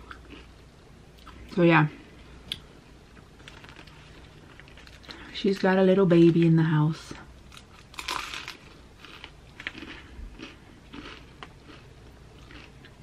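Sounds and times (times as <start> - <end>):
person chewing: 0.0 - 0.6, 7.5 - 13.0
crunchy bite of sandwich: 7.5 - 13.0.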